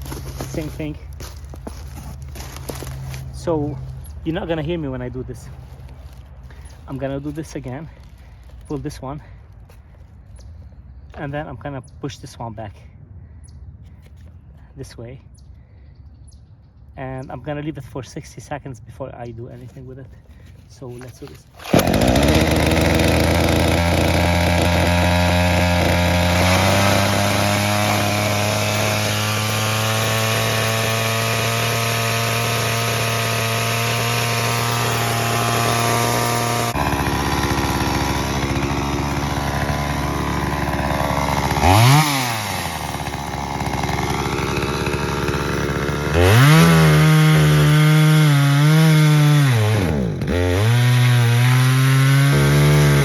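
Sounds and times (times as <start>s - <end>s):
chainsaw engine idling and revving: 0.0s - 9.5s, 21.0s - 53.0s.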